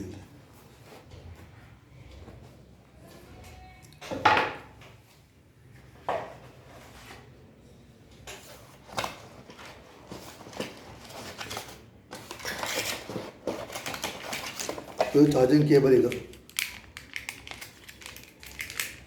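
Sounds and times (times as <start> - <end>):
packaging rustling: 8.6 - 19.0.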